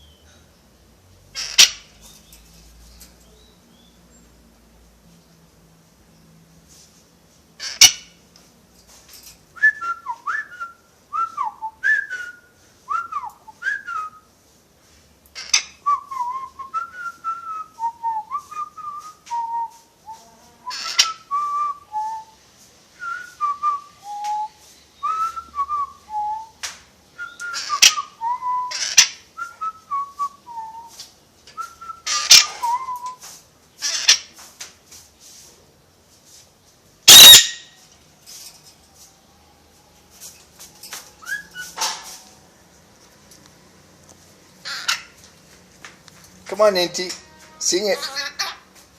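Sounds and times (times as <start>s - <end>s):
parrot whistling a tune: 27.2s - 31.0s, 31.6s - 33.2s, 37.1s - 37.6s, 41.2s - 41.8s
parrot clicks or squawks: 37.1s - 37.6s.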